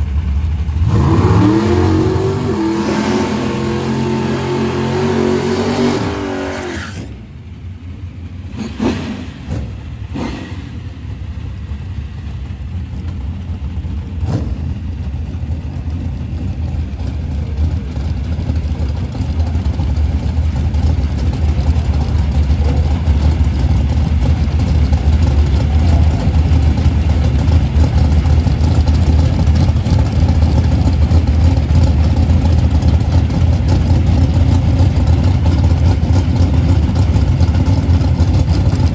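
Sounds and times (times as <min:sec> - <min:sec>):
deep engine rumble: 0:00.0 - 0:38.9
engine revving: 0:00.7 - 0:07.2, 0:08.5 - 0:10.9, 0:14.2 - 0:14.8.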